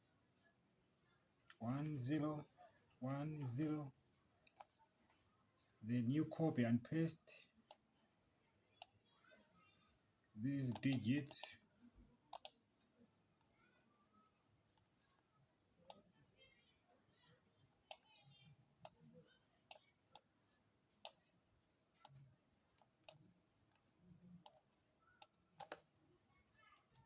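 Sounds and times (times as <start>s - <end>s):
faint computer mouse clicks: 12.3s - 12.6s, 25.2s - 25.9s.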